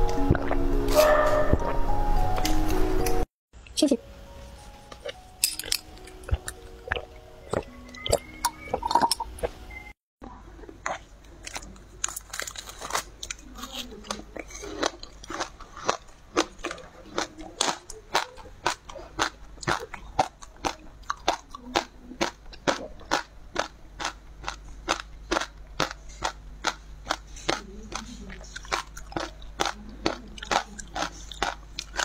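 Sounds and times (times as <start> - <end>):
seaweed beads popping while chewed: 14.9 - 32.0.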